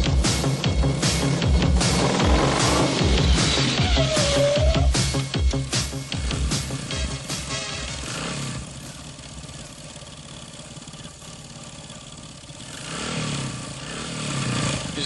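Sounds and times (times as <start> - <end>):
song music: 0.0 - 8.2
vehicle engine idling: 0.0 - 15.0.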